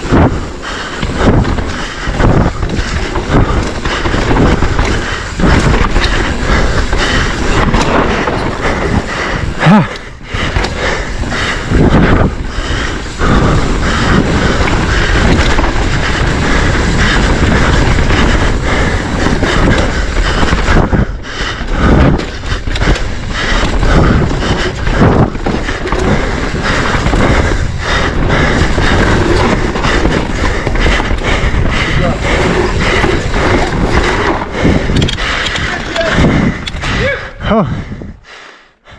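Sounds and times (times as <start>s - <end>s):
wind rushing over microphone: 0.0s - 38.3s
bike tyre and trail noise: 0.0s - 38.9s.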